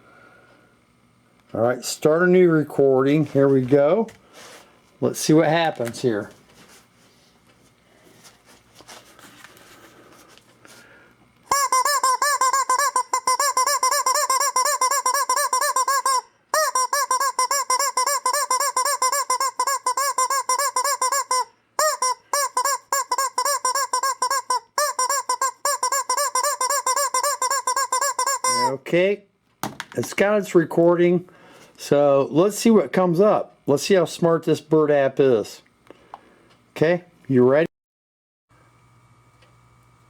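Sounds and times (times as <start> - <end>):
squeaky bird-like chirps: 11.5 - 28.8.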